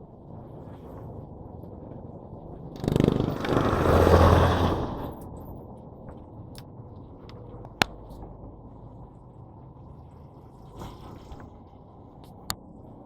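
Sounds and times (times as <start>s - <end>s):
rattle: 2.7s - 5.6s
vehicle passing by: 2.8s - 5.3s.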